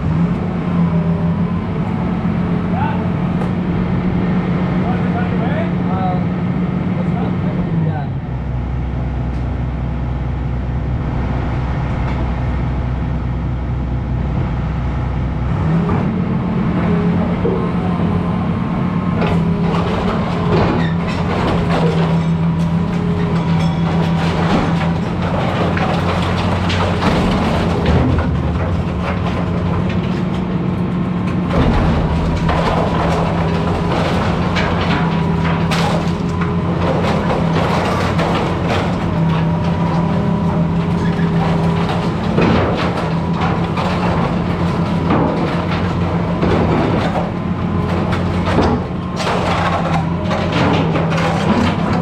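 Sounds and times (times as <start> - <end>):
excavator diesel engine revving: 0.0 - 52.0
wood and debris cracking: 16.9 - 52.0.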